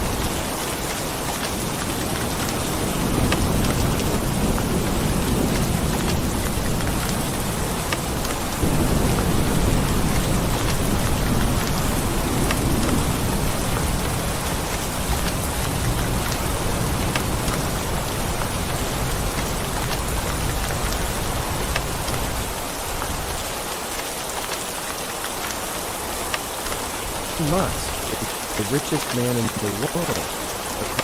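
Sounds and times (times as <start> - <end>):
heavy rain: 0.0 - 31.0
low thunder rumble: 1.9 - 22.5.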